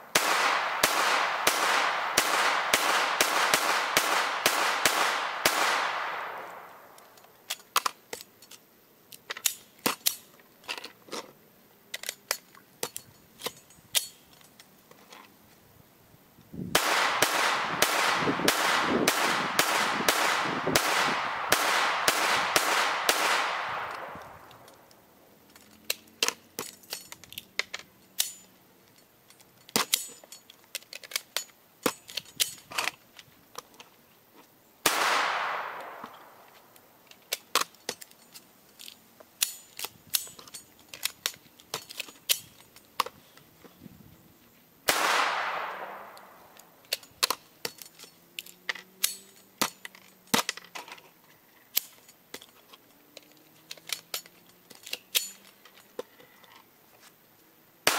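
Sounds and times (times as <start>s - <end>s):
rifle shots with echo: 0.1s - 7.0s, 16.7s - 24.8s, 34.8s - 36.5s, 44.9s - 46.6s
metallic clicks of rifle action: 5.2s - 11.3s, 11.9s - 15.4s, 22.4s - 43.8s, 45.0s - 56.7s.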